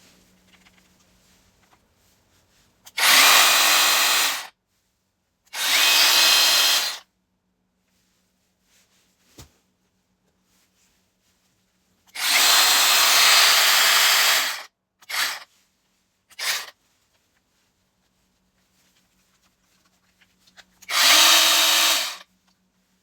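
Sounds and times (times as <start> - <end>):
mini chainsaw motor running: 3.0 - 4.5, 5.6 - 7.0, 12.2 - 15.4, 16.4 - 16.7, 20.8 - 22.3.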